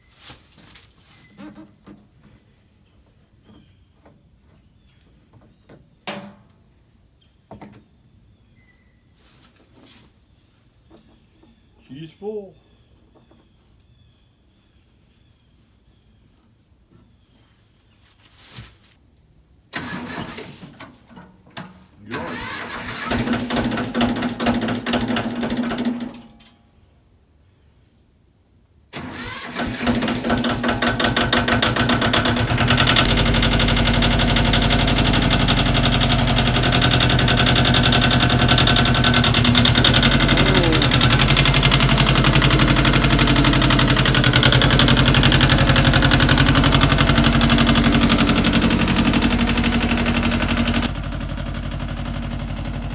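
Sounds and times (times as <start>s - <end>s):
tractor engine running: 19.8s - 20.9s, 22.1s - 26.3s, 29.0s - 52.9s.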